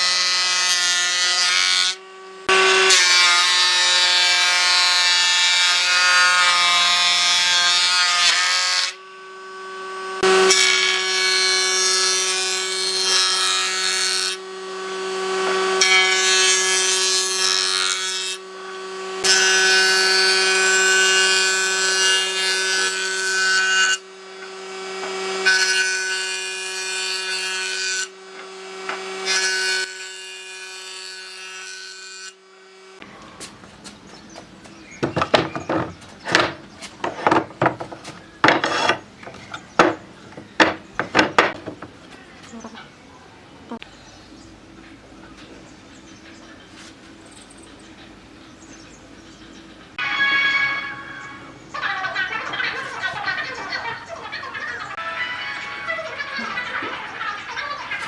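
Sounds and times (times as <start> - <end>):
electric power tool humming: 0.0 - 30.0, 34.9 - 42.0
wood scraping: 33.0 - 42.8.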